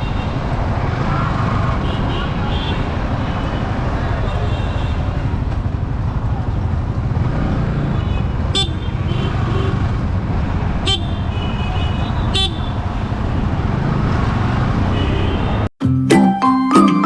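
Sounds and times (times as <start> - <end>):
motorcycle riding: 0.0 - 15.6
horn toots: 7.2 - 10.0.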